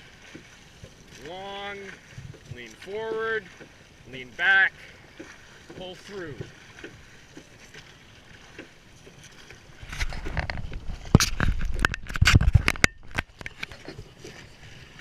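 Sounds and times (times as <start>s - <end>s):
water: 0.0s - 15.0s
wind: 0.0s - 15.0s.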